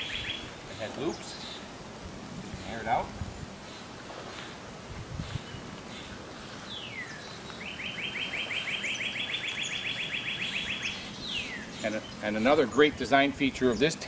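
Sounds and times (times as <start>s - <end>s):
songbird whistling and trilling: 0.0s - 0.5s, 6.7s - 12.2s.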